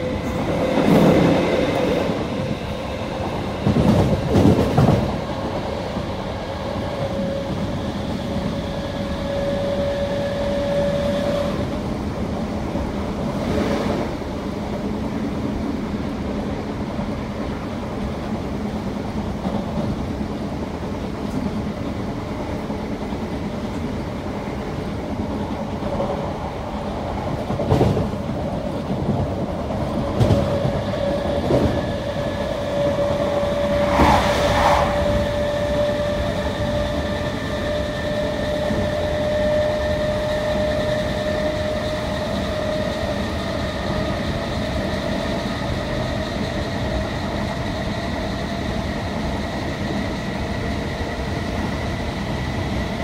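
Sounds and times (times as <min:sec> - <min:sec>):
train wheels rumbling on track: 0:00.0 - 0:53.0
whining tone: 0:30.0 - 0:44.0.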